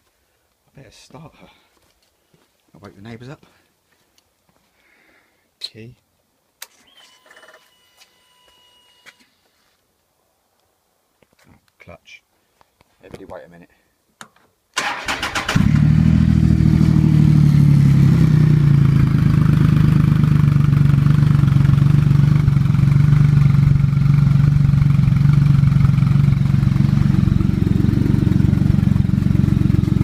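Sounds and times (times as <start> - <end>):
engine starter cranking: 14.8 - 15.8
motorcycle engine idling: 15.8 - 30.0.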